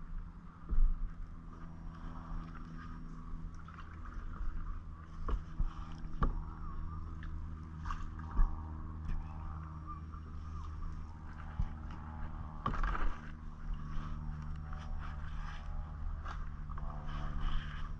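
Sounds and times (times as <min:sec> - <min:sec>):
paddle strokes in water: 0:00.0 - 0:17.9
steady low hum: 0:00.0 - 0:17.9
paddle knocking against hull: 0:02.7 - 0:14.2.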